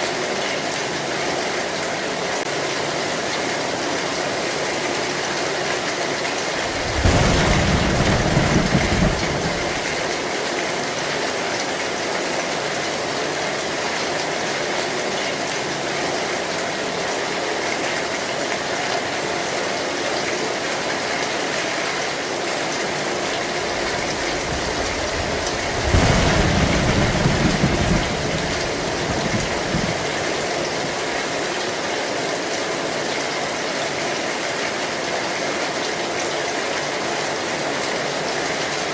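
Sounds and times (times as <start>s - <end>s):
heavy rain on metal roof: 0.0s - 38.9s
low rumbles of thunder: 6.5s - 10.2s, 23.3s - 31.0s.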